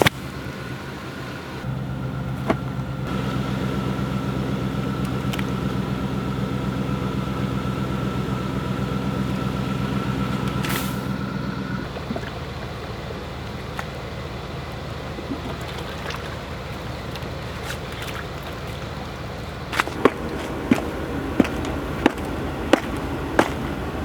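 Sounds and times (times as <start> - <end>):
large engine idling with whine: 0.0 - 24.0.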